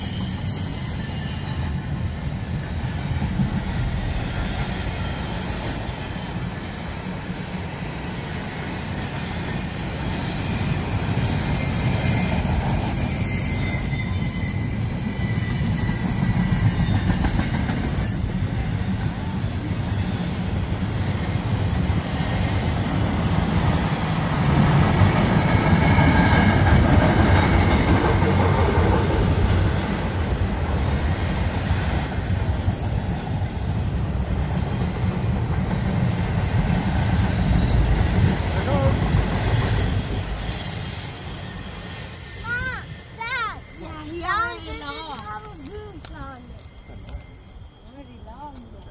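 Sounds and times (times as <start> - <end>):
high thin wheel squeal: 0.0 - 48.9
wheels rumbling on rail: 0.0 - 48.9.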